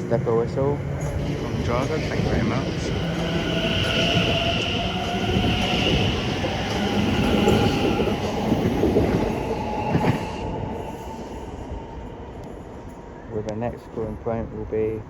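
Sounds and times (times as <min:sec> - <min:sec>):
electric train motors whining: 0:00.0 - 0:12.9
train wheels rumbling: 0:00.0 - 0:15.0.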